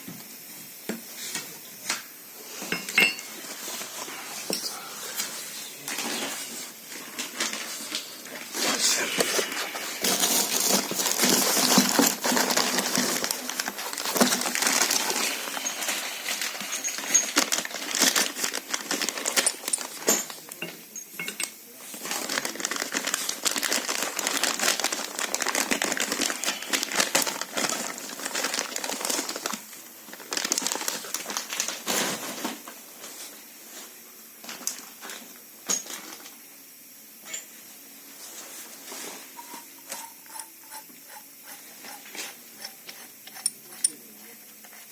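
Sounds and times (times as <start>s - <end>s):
metal tools clinking and clattering: 2.7s - 3.4s, 14.2s - 17.6s, 19.3s - 21.6s.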